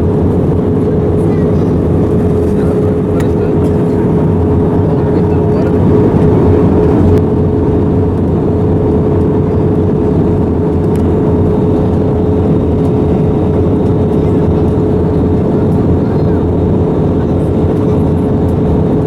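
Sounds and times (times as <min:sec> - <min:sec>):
airliner cabin engine rush: 0:00.0 - 0:19.0
mid-pitched hum: 0:00.0 - 0:19.0.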